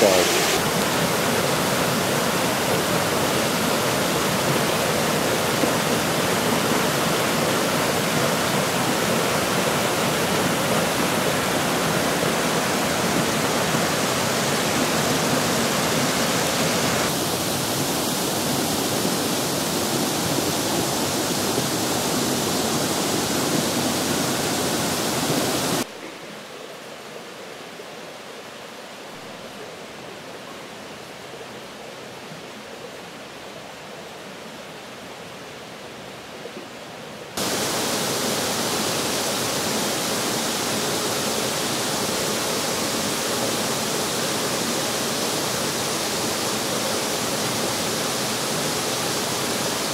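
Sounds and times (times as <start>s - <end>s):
water cascading over rocks: 0.0s - 25.9s, 37.4s - 49.9s.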